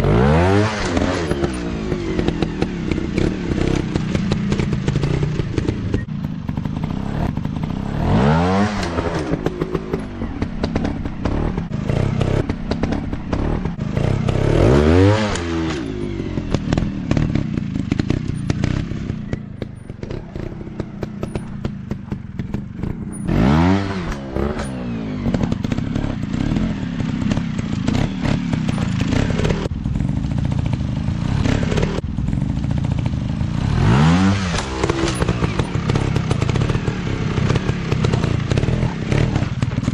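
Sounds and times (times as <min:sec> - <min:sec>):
dirt bike engines revving: 0:00.0 - 0:39.9.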